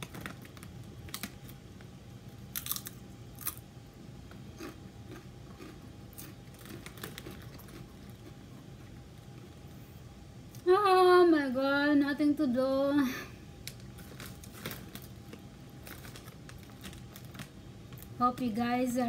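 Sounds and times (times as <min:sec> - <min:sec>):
person crunching chips: 0:02.4 - 0:03.7, 0:04.4 - 0:09.0, 0:13.7 - 0:18.2
plastic snack bag crackling: 0:05.6 - 0:08.4, 0:13.6 - 0:18.6.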